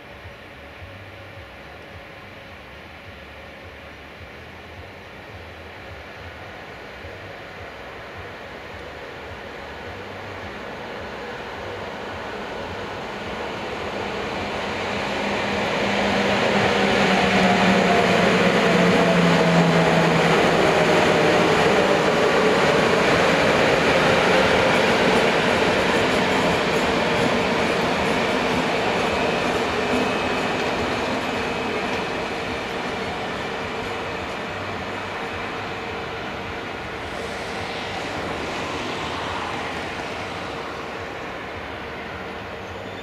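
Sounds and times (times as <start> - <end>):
train wheels rumbling on rails: 3.0 - 43.0.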